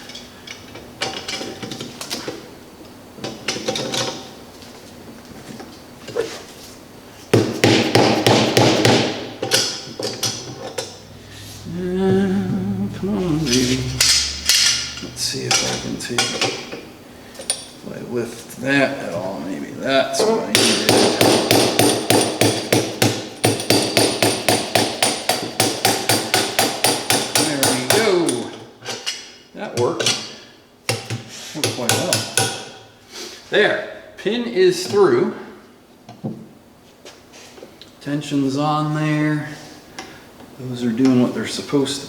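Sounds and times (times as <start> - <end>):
hammer striking metal: 12.0 - 16.7, 20.5 - 28.0.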